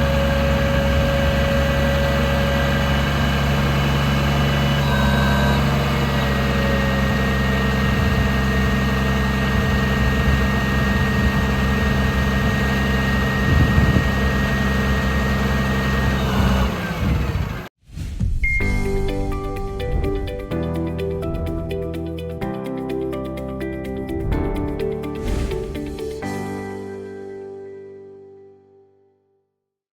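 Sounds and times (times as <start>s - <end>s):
diesel engine idling: 0.0s - 17.7s.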